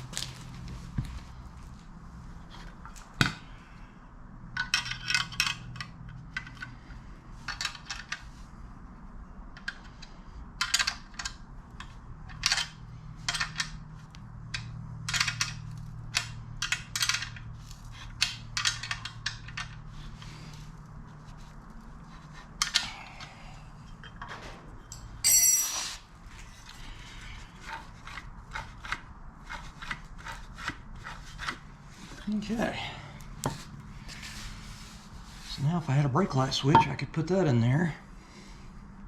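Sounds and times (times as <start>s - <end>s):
metal parts and tools clinking: 4.6s - 6.7s, 23.9s - 26.6s.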